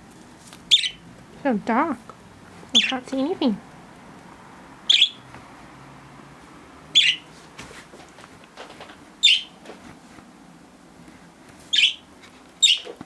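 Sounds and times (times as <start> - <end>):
budgerigar calling: 0.7 - 1.0, 2.8 - 3.0, 4.9 - 5.2, 7.0 - 7.2, 9.2 - 9.6, 11.7 - 12.0, 12.6 - 13.0.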